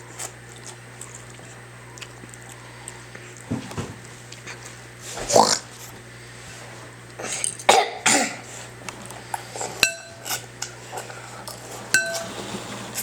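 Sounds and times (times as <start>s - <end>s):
dishes and cutlery clinking: 9.6s - 10.5s, 11.5s - 12.6s.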